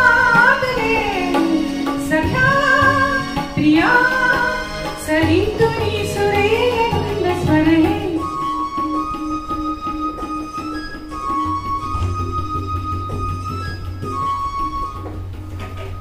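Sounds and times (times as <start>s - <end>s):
woman singing: 0.0s - 8.4s
instrumental backing: 0.0s - 16.0s.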